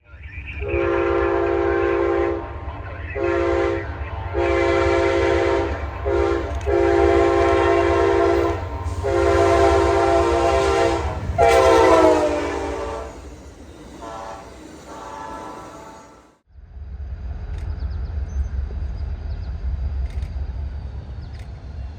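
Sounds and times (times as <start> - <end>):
moving train rumble: 0.0 - 21.9
locomotive air horn blasts: 0.6 - 16.4.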